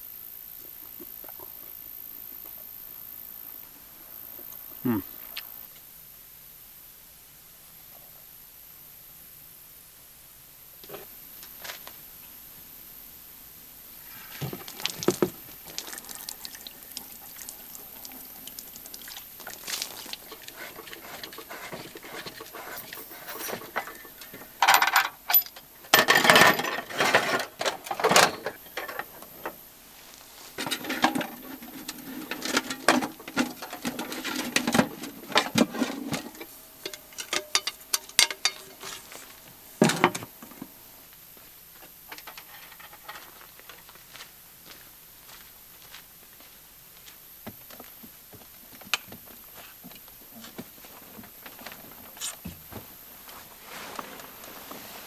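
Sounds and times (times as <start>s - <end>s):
cookware and utensils clattering: 19.6s - 29.2s, 30.6s - 39.2s.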